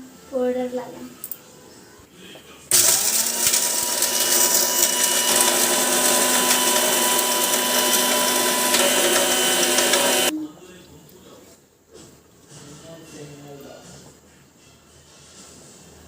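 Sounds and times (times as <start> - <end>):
mixer grinder motor whine: 2.7 - 10.3.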